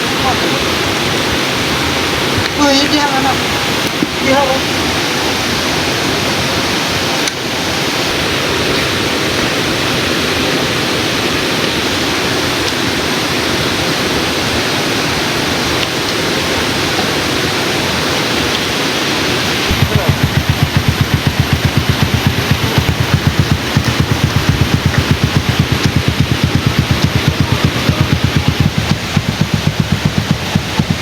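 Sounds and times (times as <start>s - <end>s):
river water rushing: 0.0s - 31.0s
low pulsing beat: 19.7s - 31.0s.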